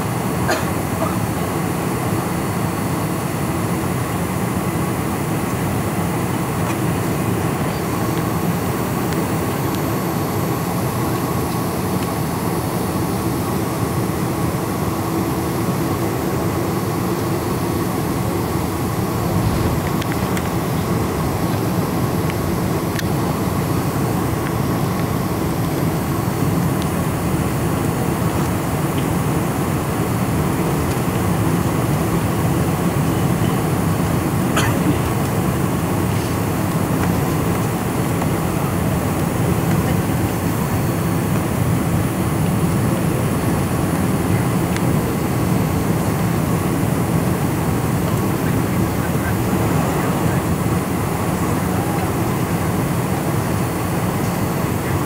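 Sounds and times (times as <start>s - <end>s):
jet engines droning: 0.0s - 55.0s.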